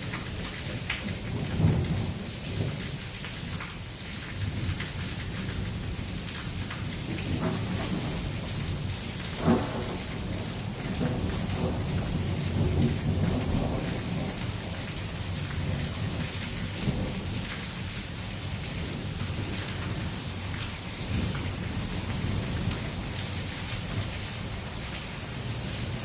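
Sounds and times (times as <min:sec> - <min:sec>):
heavy rain pouring: 0:00.0 - 0:26.0
thunder rumbling: 0:06.9 - 0:17.5.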